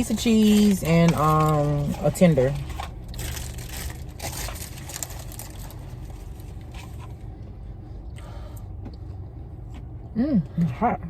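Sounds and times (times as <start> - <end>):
food wrapping rustling: 0.0 - 7.4
low hum inside car: 0.0 - 11.0.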